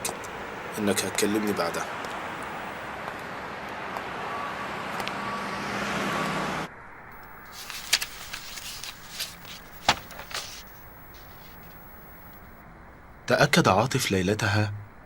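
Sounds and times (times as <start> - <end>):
faint steady hum: 6.7 - 15.0.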